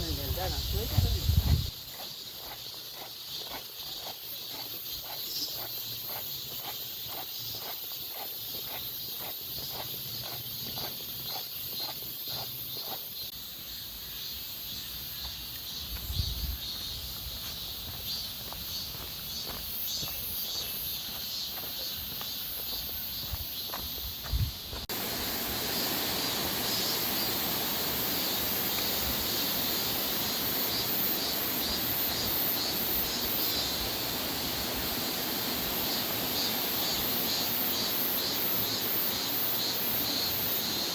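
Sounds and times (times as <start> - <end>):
cicadas and crickets chirring: 0.0 - 40.9
footsteps walking: 15.2 - 25.1.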